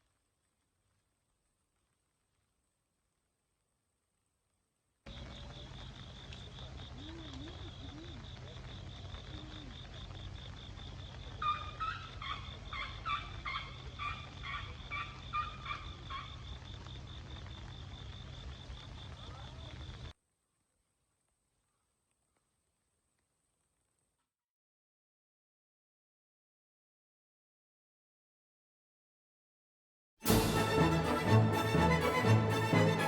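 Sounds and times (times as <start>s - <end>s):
bird calling: 11.4s - 16.4s.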